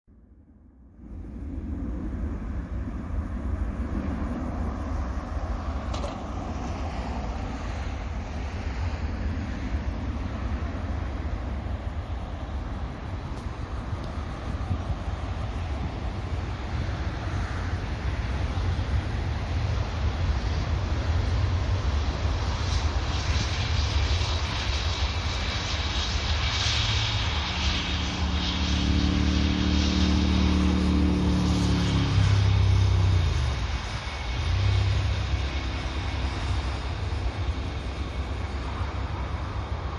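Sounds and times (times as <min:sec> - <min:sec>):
jet engines rumbling: 0:00.1 - 0:39.9
steady low hum: 0:00.1 - 0:39.9.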